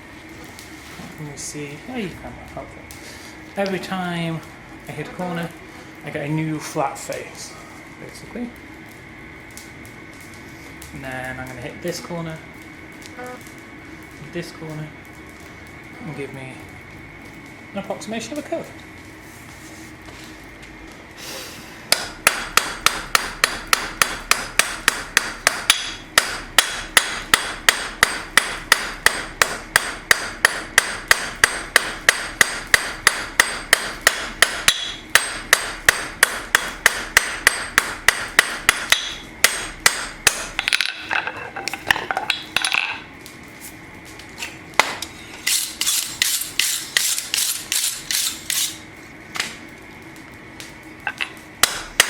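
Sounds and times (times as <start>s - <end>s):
hammer striking steel on anvil: 21.9s - 41.0s, 51.2s - 52.0s.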